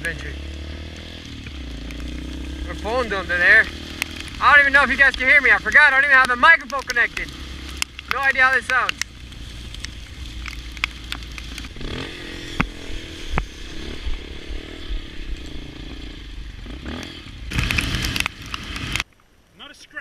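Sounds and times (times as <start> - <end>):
motorcycle engine running: 0.0 - 19.0
noisy rush: 0.0 - 20.0
sharp clicks and crackle: 0.9 - 14.2, 16.9 - 19.3.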